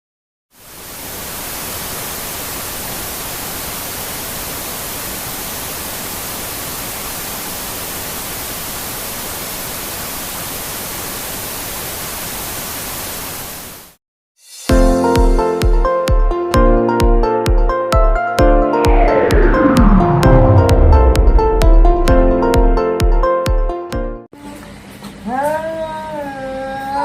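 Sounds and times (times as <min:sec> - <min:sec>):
static hiss: 0:00.5 - 0:14.0.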